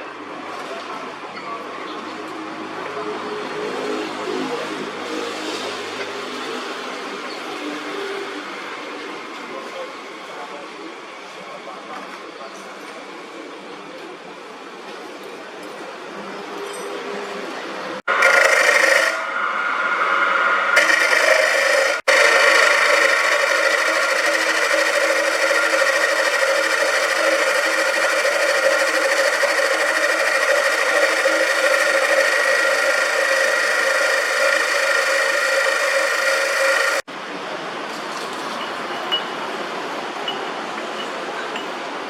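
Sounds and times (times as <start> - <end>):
metal lathe whining: 18.1 - 37.1.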